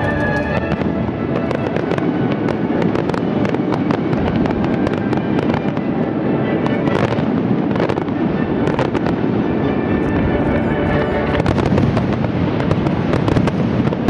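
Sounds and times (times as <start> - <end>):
fireworks crackling: 0.0 - 14.0
firework hiss: 9.9 - 14.0
sharp firework pops: 10.5 - 14.0.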